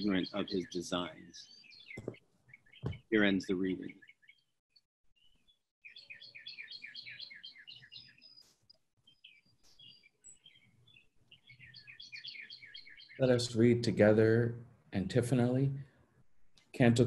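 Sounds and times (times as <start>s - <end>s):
faint bird chirps: 0.0s - 4.6s, 5.2s - 13.8s.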